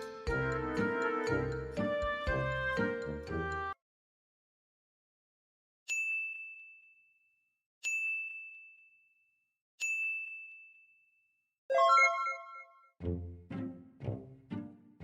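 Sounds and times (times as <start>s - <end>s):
bell-like ding: 11.7s - 12.8s
chime of several notes: 11.7s - 12.9s.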